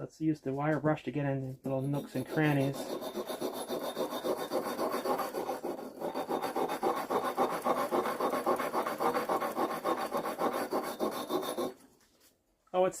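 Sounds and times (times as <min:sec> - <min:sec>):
wire brush scrubbing metal: 0:01.6 - 0:11.8.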